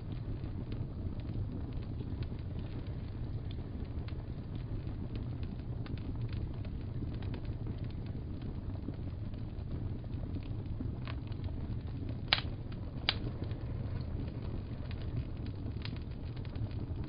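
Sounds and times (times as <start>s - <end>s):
fire popping: 0.0s - 17.0s
low rumble: 0.0s - 17.0s
wood fire crackling: 0.0s - 17.0s.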